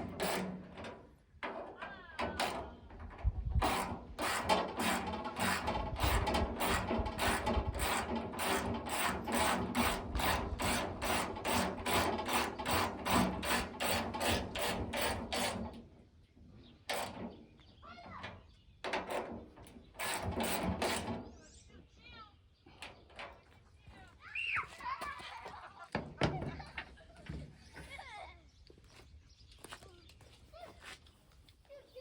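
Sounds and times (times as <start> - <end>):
hand tool rasping strokes: 3.6 - 15.8, 19.0 - 21.2.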